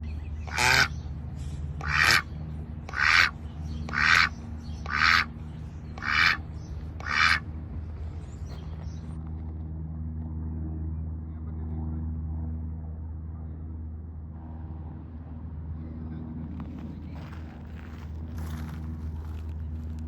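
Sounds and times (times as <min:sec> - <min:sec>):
steady low hum: 0:00.0 - 0:20.0
duck quacking: 0:00.4 - 0:01.0, 0:01.8 - 0:05.3, 0:05.9 - 0:06.4, 0:07.0 - 0:07.4.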